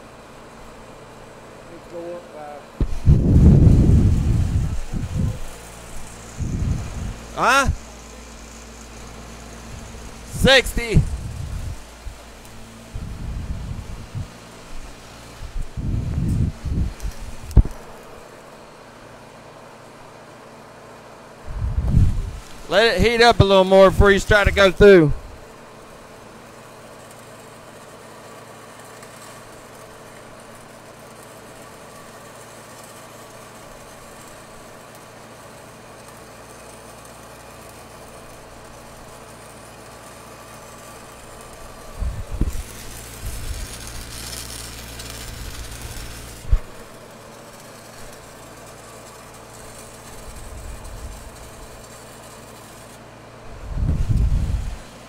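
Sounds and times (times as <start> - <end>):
welding machine engine drone: 0.0 - 55.0
hissing: 2.8 - 18.3, 36.7 - 53.0.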